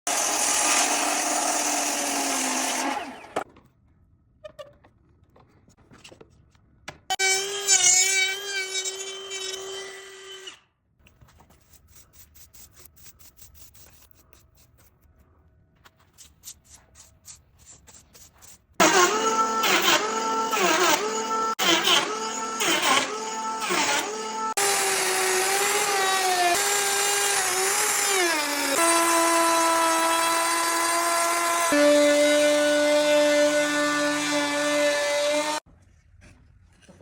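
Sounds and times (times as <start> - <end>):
power tool humming: 0.1 - 3.4, 18.8 - 35.6.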